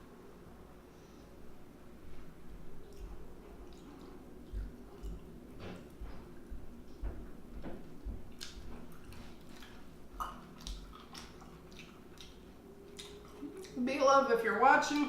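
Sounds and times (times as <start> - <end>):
person chewing and smacking: 2.7 - 13.8.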